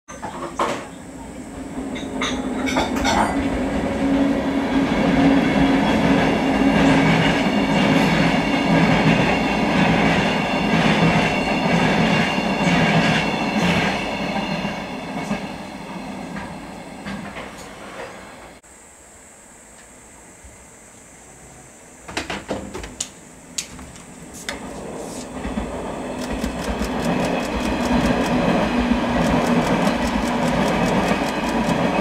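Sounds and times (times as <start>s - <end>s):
train running hum: 0.2s - 18.6s, 19.2s - 32.0s
wheels clicking over rails: 24.6s - 32.0s.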